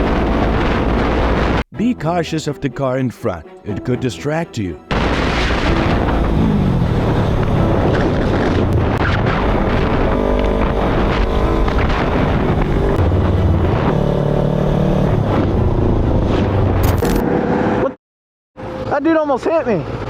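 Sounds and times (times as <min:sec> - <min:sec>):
wind rush on microphone: 0:05.0 - 0:14.0
motorcycle engine running: 0:05.8 - 0:15.3.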